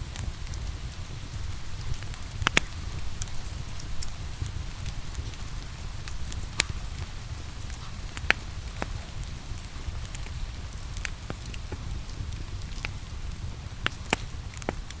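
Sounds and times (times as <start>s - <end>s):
rain falling: 0.0s - 15.0s
wood fire crackling: 0.0s - 15.0s.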